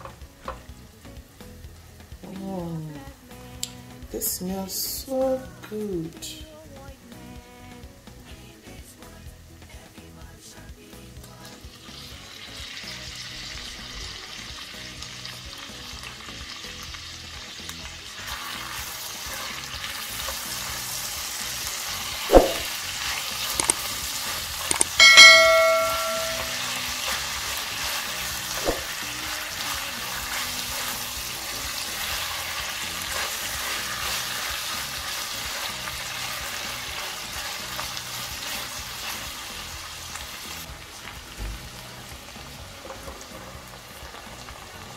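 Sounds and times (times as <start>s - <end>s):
tomatoes sizzling in a pan: 0.0s - 44.9s
bell-like ding: 24.8s - 26.7s.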